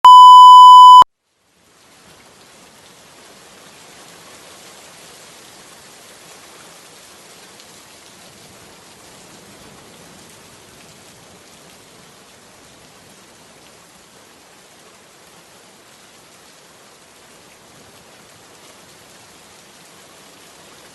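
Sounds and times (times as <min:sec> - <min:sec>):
loud harsh beep: 0:00.0 - 0:01.0
steady falling rain: 0:01.2 - 0:20.9.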